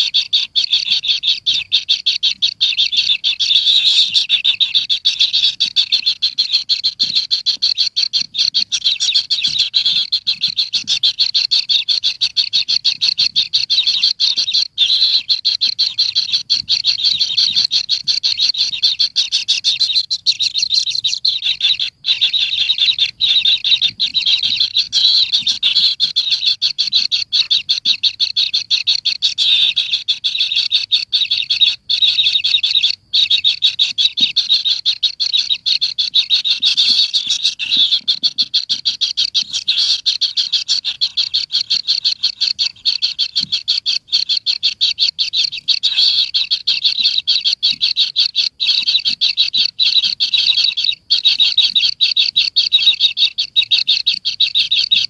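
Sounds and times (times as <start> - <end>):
high rapid chirping calls: 0.0 - 55.0.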